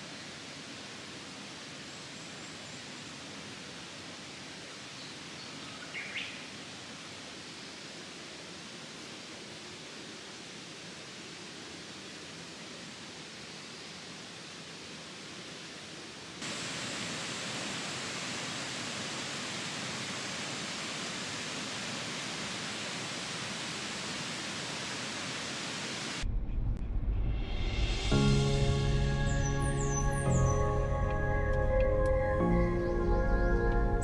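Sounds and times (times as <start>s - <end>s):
rushing outdoor noise: 0.0s - 34.0s
music: 27.0s - 34.0s.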